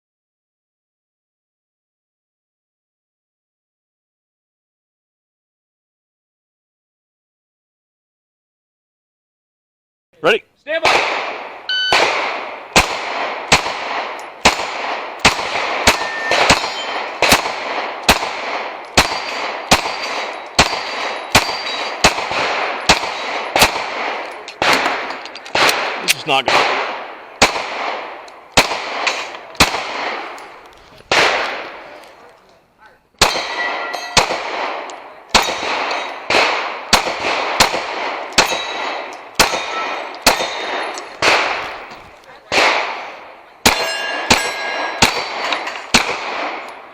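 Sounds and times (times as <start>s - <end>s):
pistol shots with echo: 10.7s - 32.3s, 33.2s - 46.9s.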